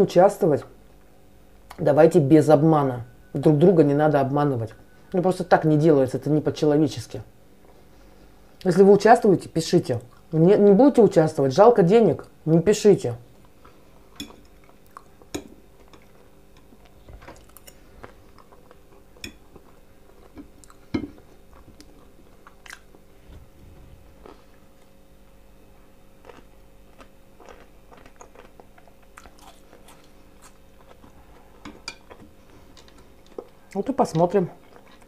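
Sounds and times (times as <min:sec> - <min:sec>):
chewing fried potatoes: 0:09.9 - 0:10.4, 0:13.3 - 0:23.1, 0:26.0 - 0:35.0.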